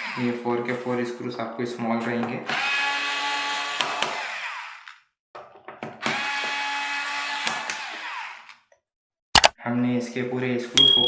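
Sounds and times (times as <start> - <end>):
electric screwdriver running: 2.5 - 5.0, 6.0 - 8.6.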